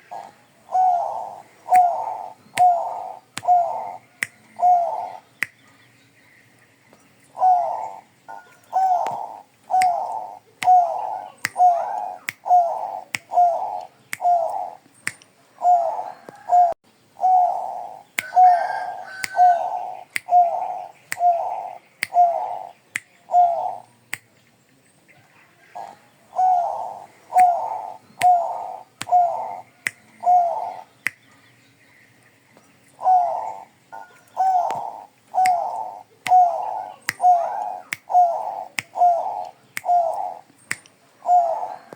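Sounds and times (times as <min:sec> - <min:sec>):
dove cooing: 0:00.0 - 0:05.3, 0:07.4 - 0:14.8, 0:15.5 - 0:23.8, 0:25.6 - 0:30.9, 0:33.0 - 0:40.5, 0:41.2 - 0:41.9.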